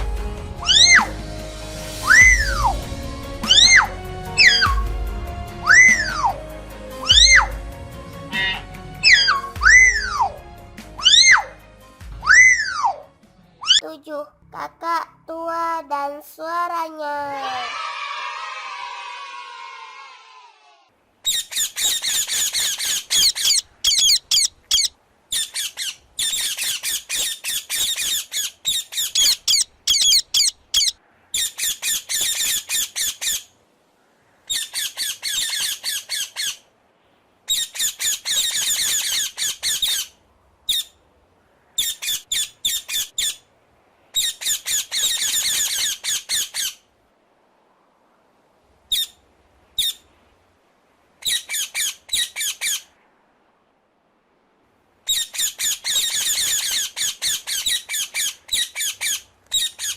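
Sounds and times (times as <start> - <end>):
cockatoo screeching: 0.6 - 1.2, 2.0 - 2.8, 3.4 - 4.8, 5.6 - 6.4, 7.0 - 7.6, 8.3 - 10.4, 11.0 - 11.6, 12.2 - 13.8.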